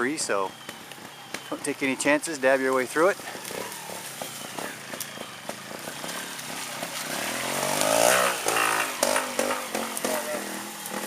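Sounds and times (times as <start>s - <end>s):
motorcycle engine revving: 3.2s - 11.0s.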